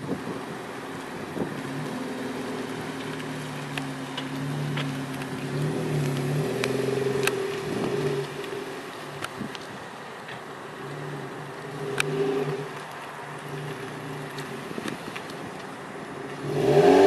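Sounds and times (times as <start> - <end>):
car exhaust note: 1.2 - 9.6, 10.6 - 12.8, 13.4 - 17.0.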